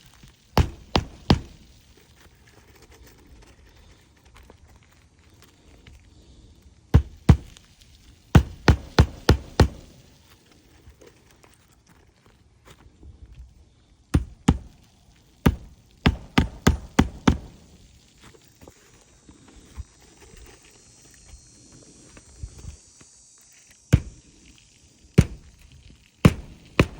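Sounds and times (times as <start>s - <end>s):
hammer blows on shingle roof: 0.6s - 1.8s, 7.0s - 10.2s, 14.2s - 17.8s, 24.0s - 24.3s, 25.2s - 25.6s, 26.2s - 26.9s.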